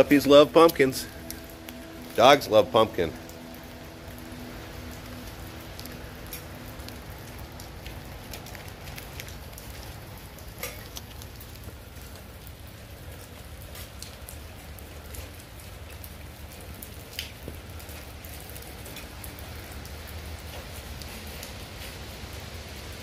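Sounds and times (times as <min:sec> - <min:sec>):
low rumble: 0:00.0 - 0:10.6
light rain pattering on brick: 0:00.0 - 0:23.0.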